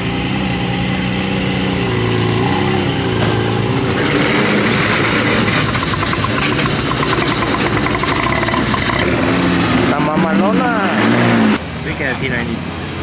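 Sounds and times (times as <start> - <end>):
car engine idling: 4.6 - 9.2.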